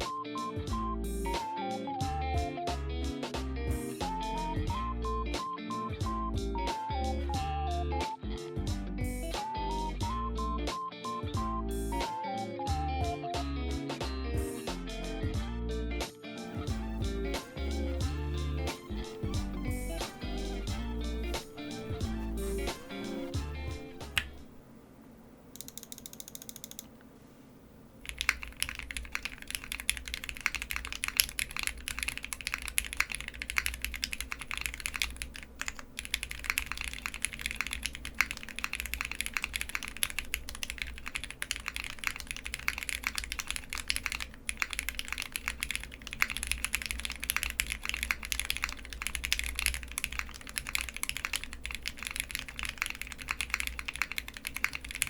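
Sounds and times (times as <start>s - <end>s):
mechanical keyboard typing: 25.6s - 26.9s, 28.0s - 55.0s.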